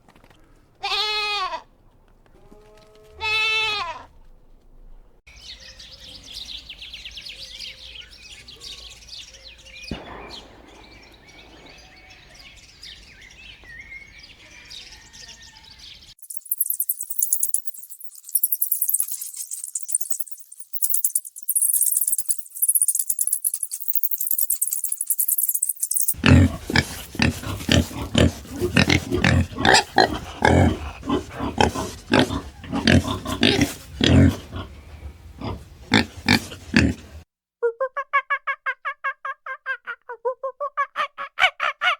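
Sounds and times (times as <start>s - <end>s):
small birds chirping: 5.3s - 37.2s
jingling rattle: 16.2s - 26.2s
low animal grunts: 26.2s - 37.2s.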